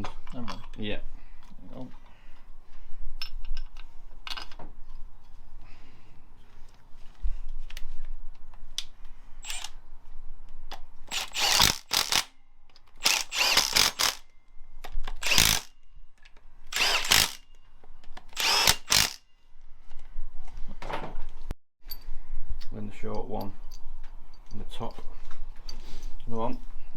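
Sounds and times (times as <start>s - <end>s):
power tool driving bolts: 9.4s - 9.8s, 11.1s - 14.3s, 15.0s - 15.8s, 16.7s - 17.5s, 18.2s - 19.2s
clicks of parts and tools: 10.7s - 19.2s.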